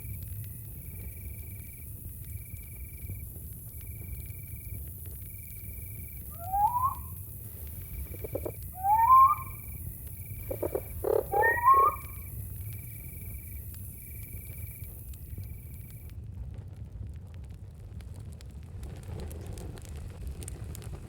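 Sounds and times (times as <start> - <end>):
cricket trilling: 0.1 - 16.1
animal calls sliding upward: 6.4 - 7.1, 8.2 - 9.6, 10.5 - 12.2.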